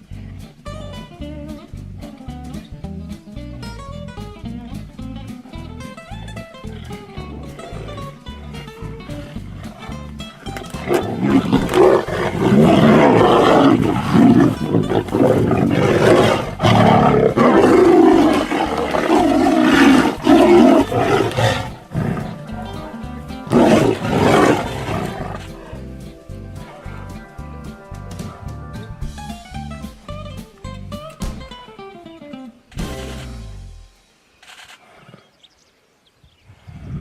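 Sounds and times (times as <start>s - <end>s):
background music: 0.0s - 34.2s
tigers roaring and snarling: 6.6s - 27.3s.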